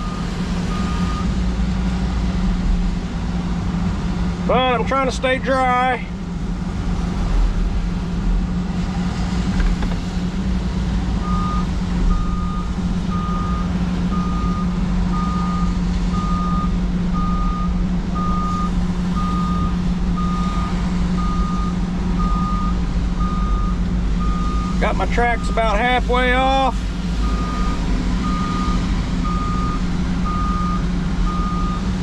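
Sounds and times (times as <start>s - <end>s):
travel alarm beeping: 0.0s - 1.3s, 11.2s - 25.8s, 27.2s - 31.9s
diesel engine running: 0.0s - 32.0s.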